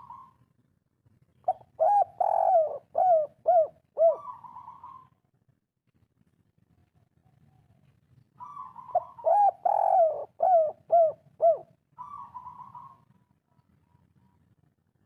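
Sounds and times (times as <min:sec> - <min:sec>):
dove cooing: 0:00.0 - 0:00.4, 0:01.4 - 0:05.2, 0:08.4 - 0:13.1.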